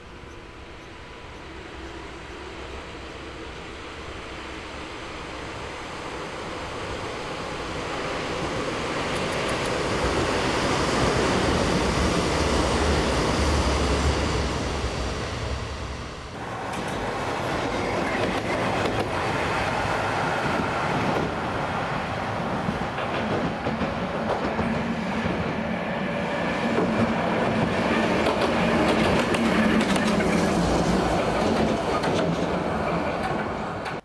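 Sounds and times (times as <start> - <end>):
train rumbling past: 0.0 - 34.0
wheels clacking over rail joints: 26.7 - 34.0.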